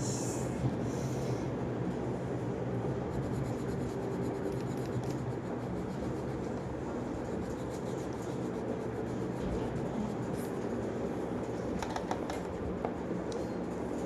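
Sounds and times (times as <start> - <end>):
steady low hum: 0.0 - 14.0
pen scratching on paper: 3.1 - 11.6.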